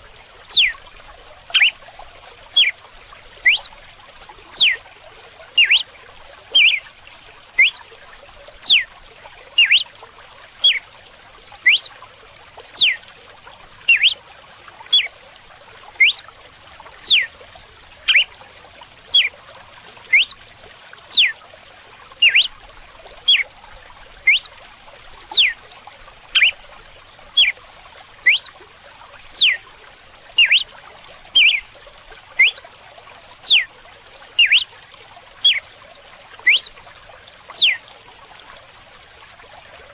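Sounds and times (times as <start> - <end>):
running water: 0.0 - 39.9
bird singing: 0.5 - 0.8, 1.6 - 1.8, 3.4 - 3.7, 4.5 - 4.8, 5.6 - 5.9, 6.6 - 6.8, 7.6 - 7.8, 8.6 - 8.9, 9.6 - 9.9, 10.6 - 10.8, 11.6 - 12.0, 12.7 - 13.0, 13.9 - 14.2, 16.0 - 16.3, 17.0 - 17.3, 18.1 - 18.3, 19.1 - 19.3, 20.1 - 20.4, 21.1 - 21.4, 22.2 - 22.6, 23.2 - 23.4, 24.2 - 24.5, 25.3 - 25.6, 26.4 - 26.6, 28.2 - 28.6, 29.3 - 29.6, 30.4 - 30.7, 31.4 - 31.6, 32.4 - 32.6, 33.4 - 33.7, 34.4 - 34.7, 35.4 - 35.7, 36.4 - 36.8, 37.5 - 37.8.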